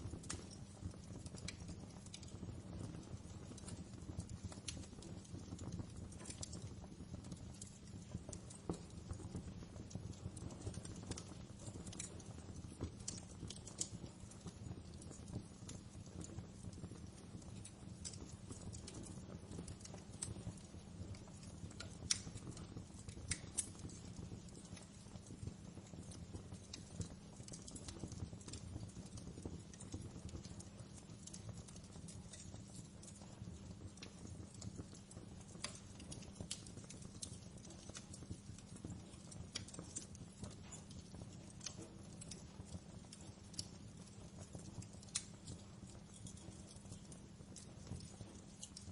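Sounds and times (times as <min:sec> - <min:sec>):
low rumble of burning fire: 0:00.0 - 0:48.9
wood fire crackling and popping: 0:00.0 - 0:48.9.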